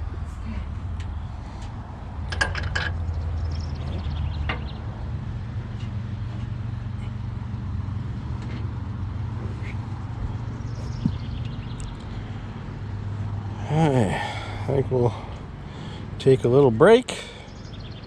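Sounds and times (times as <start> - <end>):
wind buffeting microphone: 9.9 - 12.2.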